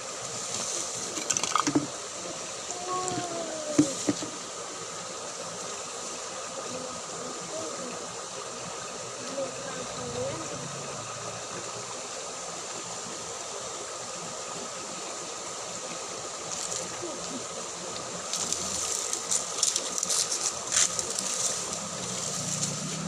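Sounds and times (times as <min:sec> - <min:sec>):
flowing water hiss: 0:00.0 - 0:23.0
crackling and rustling: 0:18.3 - 0:23.0.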